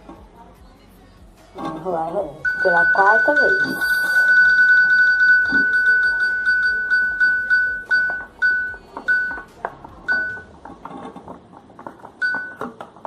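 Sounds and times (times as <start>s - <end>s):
electronic roulette beeps: 2.4s - 10.5s, 12.2s - 12.7s.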